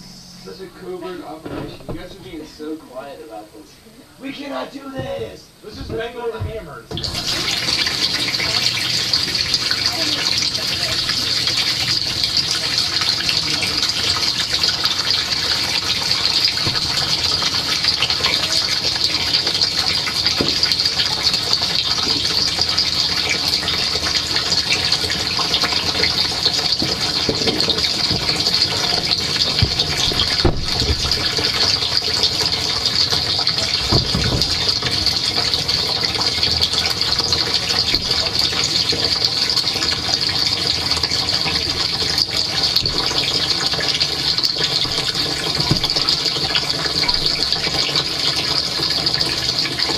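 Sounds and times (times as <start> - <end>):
dishwasher water spraying: 0.0 - 3.3, 4.2 - 49.9
low thuds: 1.4 - 2.5, 26.8 - 31.7.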